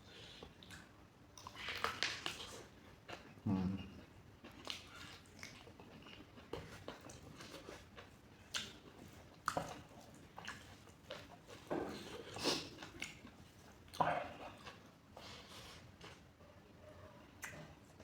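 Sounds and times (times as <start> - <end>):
mouth chewing wet food: 0.1 - 16.4
lip smacks and squelches: 4.5 - 14.8, 17.4 - 17.8.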